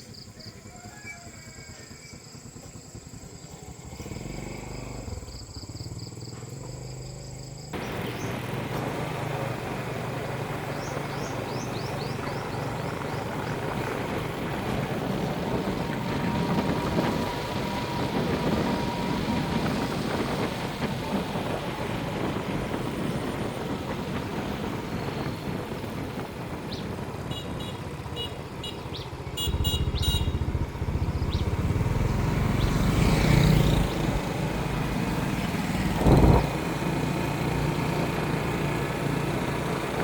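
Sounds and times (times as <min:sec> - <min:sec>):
small engine buzzing: 0:01.7 - 0:21.2, 0:27.5 - 0:40.0.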